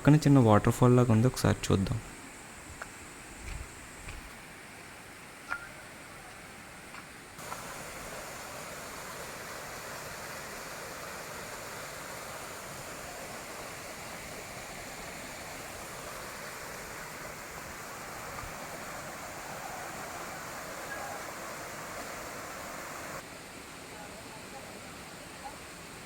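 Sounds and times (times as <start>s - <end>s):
small waterfall pouring: 7.4s - 23.2s.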